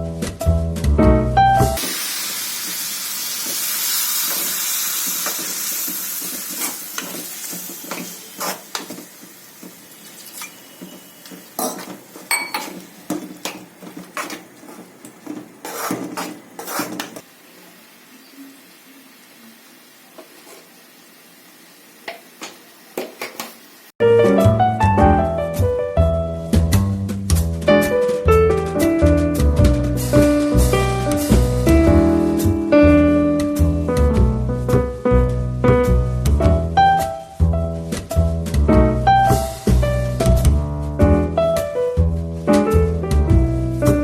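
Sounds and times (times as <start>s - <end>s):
food sizzling in hot oil: 1.7s - 24.0s, 29.9s - 31.7s, 38.9s - 40.4s
spatula scraping a pan: 6.1s - 9.1s, 13.2s - 17.2s, 20.2s - 20.8s.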